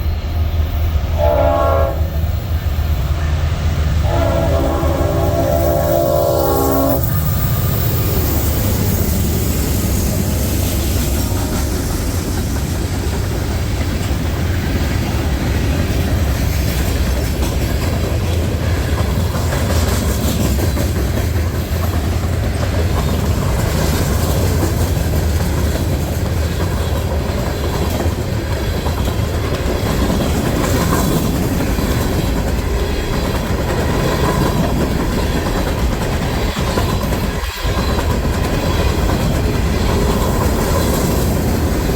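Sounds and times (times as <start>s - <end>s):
freight train rumbling past: 0.0s - 41.9s.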